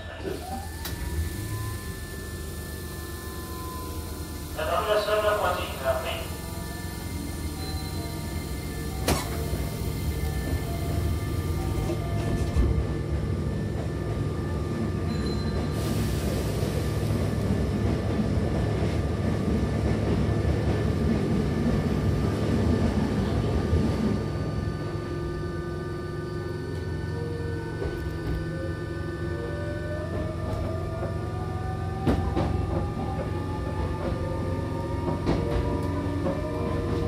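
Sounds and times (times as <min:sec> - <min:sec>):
train motors and wheels rumbling: 0:00.0 - 0:37.0
sliding doors shutting: 0:00.2 - 0:04.6, 0:06.8 - 0:12.8.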